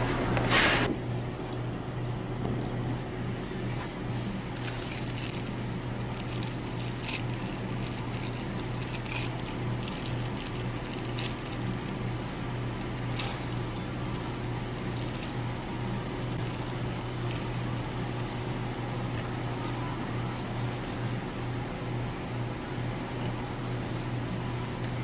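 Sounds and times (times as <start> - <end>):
microwave oven humming: 0.0 - 25.0
food crackling and popping: 1.8 - 19.9.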